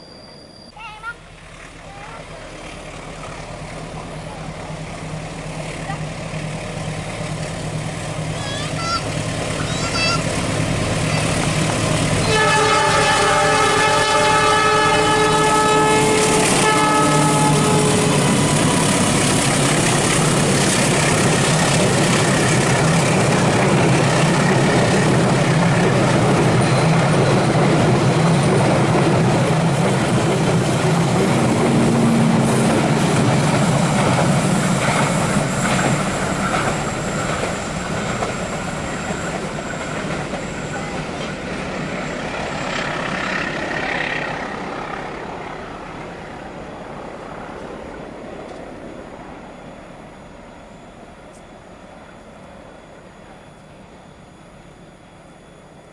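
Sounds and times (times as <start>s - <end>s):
train rumbling past on rails: 0.0s - 55.9s
train horn chord: 12.2s - 18.6s.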